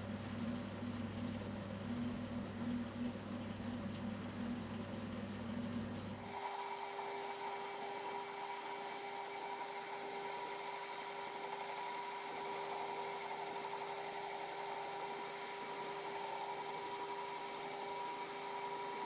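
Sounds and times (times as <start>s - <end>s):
metal lathe humming and whining: 6.2s - 19.0s.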